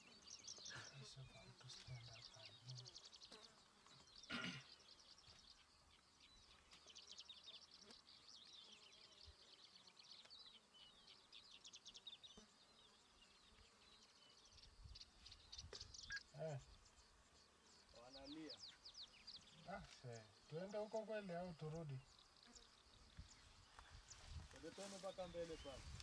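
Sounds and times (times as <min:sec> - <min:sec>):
bird chirping and trilling: 0:14.0 - 0:19.6.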